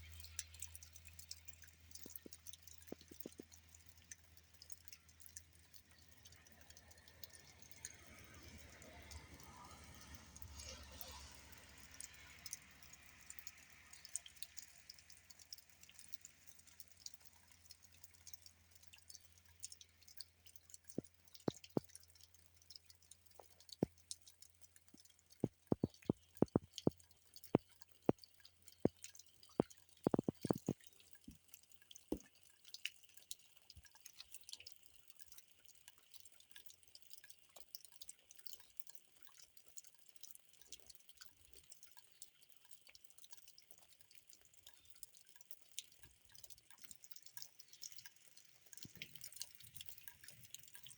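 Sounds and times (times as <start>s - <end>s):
rainwater dripping: 0.0s - 50.9s.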